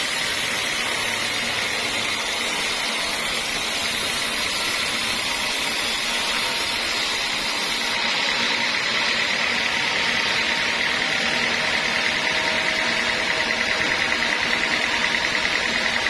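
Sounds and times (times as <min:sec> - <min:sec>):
sawmill saw whining: 0:00.0 - 0:16.0.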